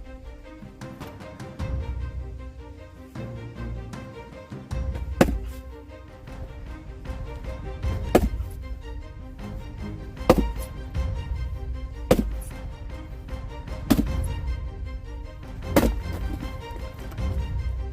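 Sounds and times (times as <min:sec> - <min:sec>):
background music: 0:00.0 - 0:17.9
axe splitting logs: 0:00.8 - 0:01.4, 0:04.7 - 0:05.7, 0:07.1 - 0:08.8, 0:10.1 - 0:11.0, 0:12.0 - 0:12.7, 0:13.6 - 0:14.5, 0:15.5 - 0:17.6.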